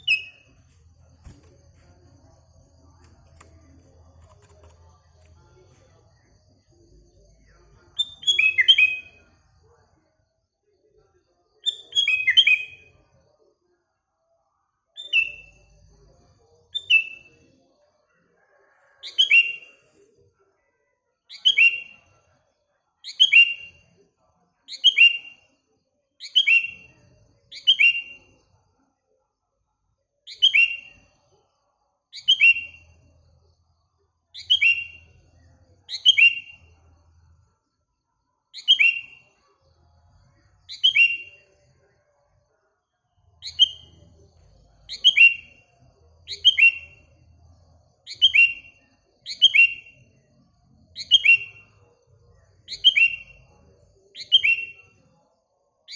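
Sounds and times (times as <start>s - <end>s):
songbird chirping: 0.0s - 13.5s, 15.0s - 22.4s, 23.0s - 24.0s, 26.2s - 28.6s, 30.3s - 55.9s.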